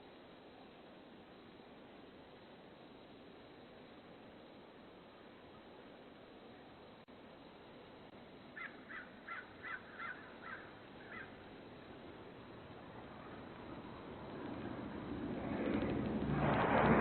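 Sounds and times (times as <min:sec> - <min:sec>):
steady low hiss: 0:00.0 - 0:17.0
bird calling: 0:08.6 - 0:11.4.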